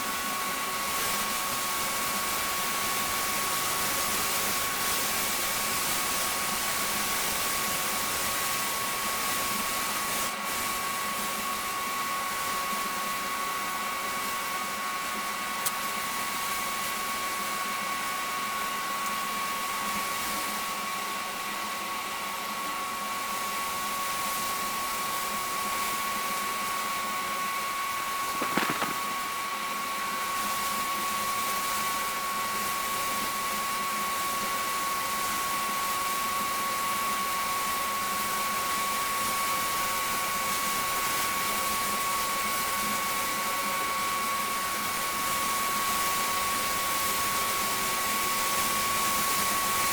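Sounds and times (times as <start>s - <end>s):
brief knock: 28.4s - 29.0s.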